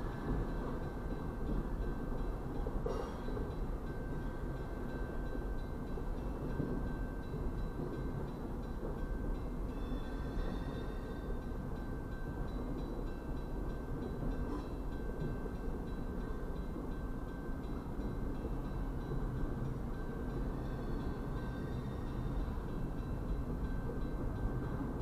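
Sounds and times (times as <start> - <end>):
train car clank: 0.0 - 25.0
train wheels rumbling on rails: 0.0 - 25.0.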